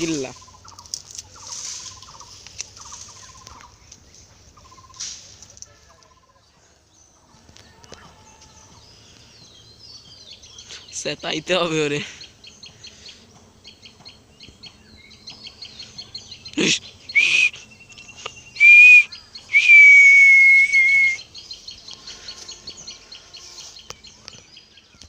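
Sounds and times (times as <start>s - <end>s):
small birds chirping: 0.0s - 25.0s
loud whistled note: 18.6s - 21.2s.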